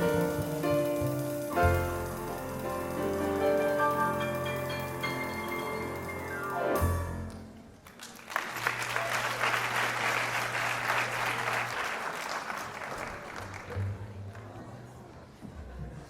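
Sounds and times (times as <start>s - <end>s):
instrumental stage music: 0.0s - 13.6s
audience applause: 7.3s - 15.2s.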